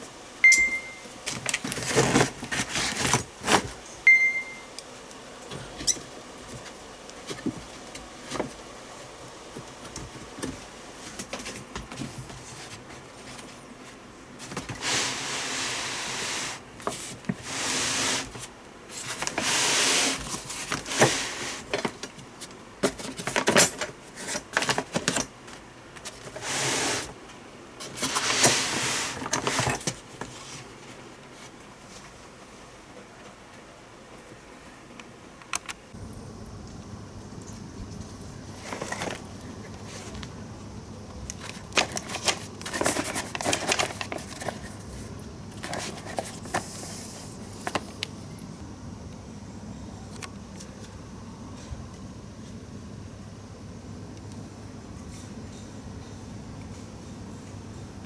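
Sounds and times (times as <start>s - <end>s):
rustling or scraping: 0.8s - 8.7s, 10.0s - 32.6s, 37.8s - 40.4s, 41.2s - 48.0s.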